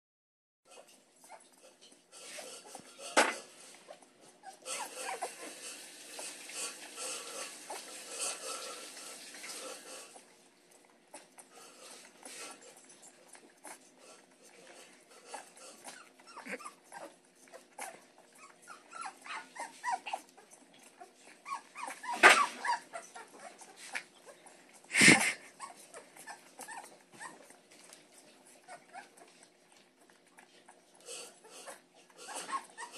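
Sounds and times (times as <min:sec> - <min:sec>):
puppy squeaking and whimpering: 0:00.7 - 0:32.9.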